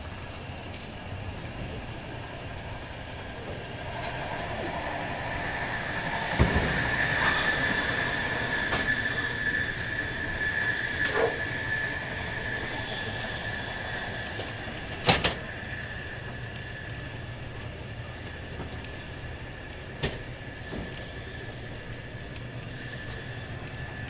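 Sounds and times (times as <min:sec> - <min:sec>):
train rumbling at speed: 0:00.0 - 0:24.0.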